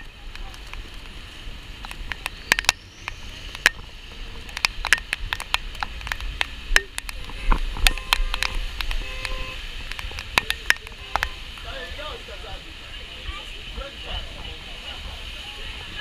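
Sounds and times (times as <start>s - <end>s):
raindrops clicking on camera: 0.0s - 11.7s
city street rumble: 0.0s - 16.0s
rain hiss: 0.0s - 16.0s.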